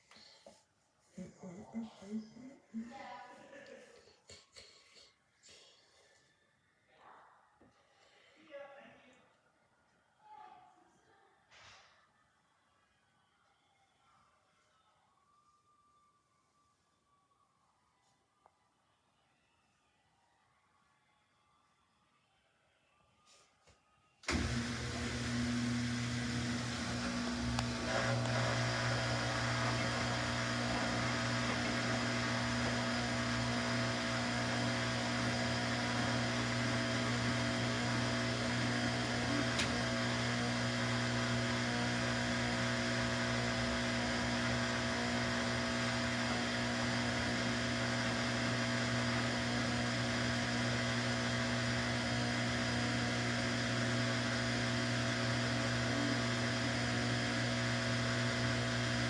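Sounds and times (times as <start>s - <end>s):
washing machine motor hum: 24.3s - 59.0s.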